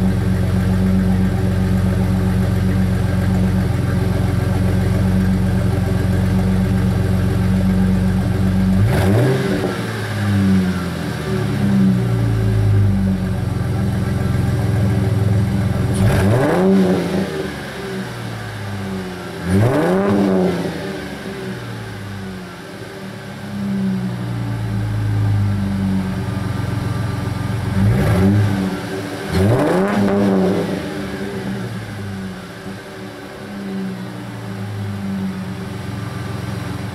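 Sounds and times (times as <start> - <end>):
car engine idling: 0.0 - 36.9
engine revving: 8.6 - 12.8, 15.8 - 22.0, 26.9 - 34.4.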